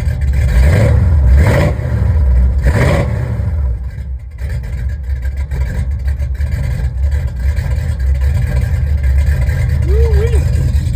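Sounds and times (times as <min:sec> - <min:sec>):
engine exhaust rumble: 0:00.0 - 0:10.9.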